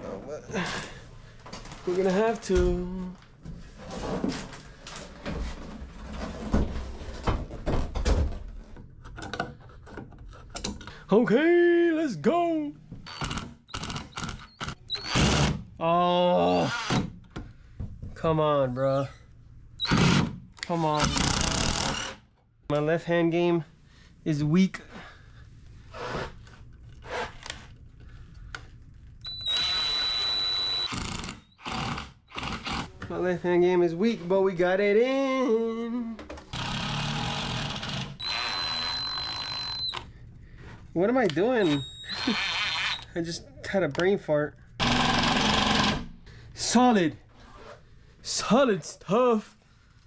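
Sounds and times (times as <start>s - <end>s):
power drill driving screw: 13.0s - 15.6s, 19.8s - 20.3s, 21.0s - 22.2s, 29.2s - 32.9s, 36.5s - 40.0s, 41.6s - 43.1s, 44.8s - 46.1s.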